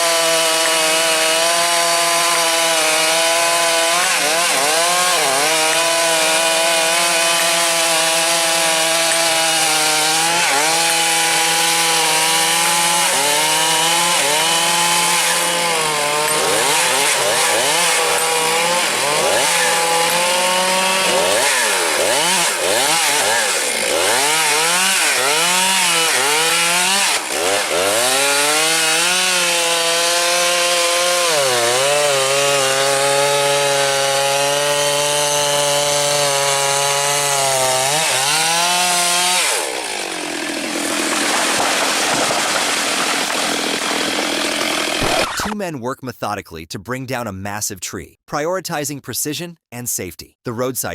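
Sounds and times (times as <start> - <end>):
chainsaw cutting wood: 0.0 - 45.6.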